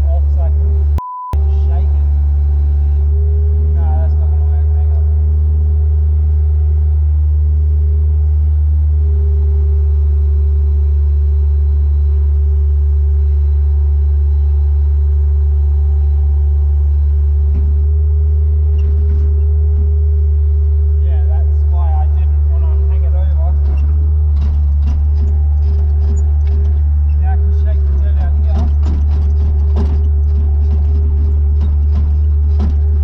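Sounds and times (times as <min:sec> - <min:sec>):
loader engine droning: 0:00.0 - 0:33.0.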